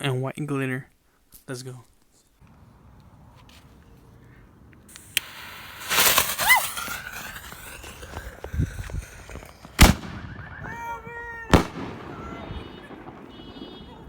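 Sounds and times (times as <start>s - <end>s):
lit fuse hissing: 4.9s - 9.7s
firework bang: 5.0s - 14.0s.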